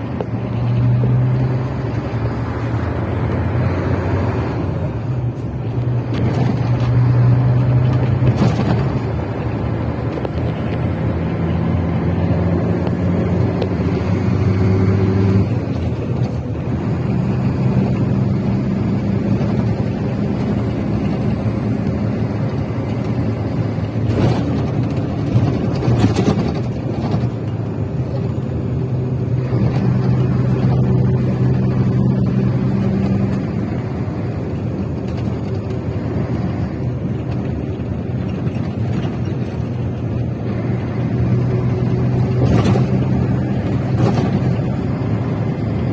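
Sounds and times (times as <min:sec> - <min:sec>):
travel noise: 0:00.0 - 0:45.9
vehicle engine droning: 0:00.0 - 0:45.9.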